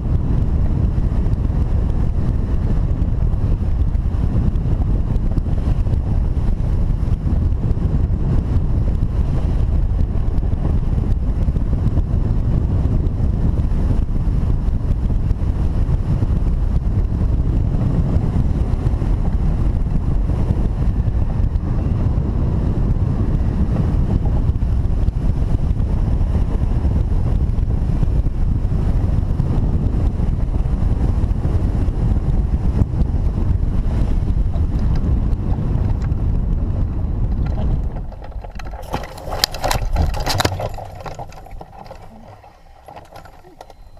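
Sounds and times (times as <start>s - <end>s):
wind rumbling over microphone: 0.0s - 43.9s.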